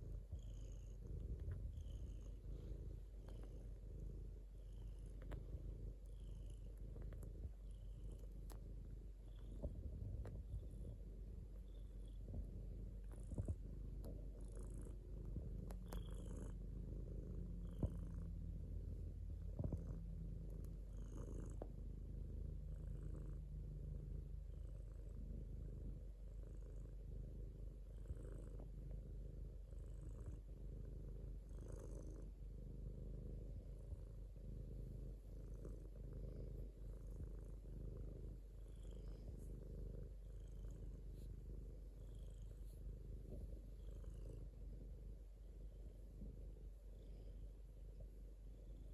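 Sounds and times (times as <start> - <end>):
cat purring: 0.0 - 48.9
faint clicks: 5.0 - 8.7, 15.4 - 16.3.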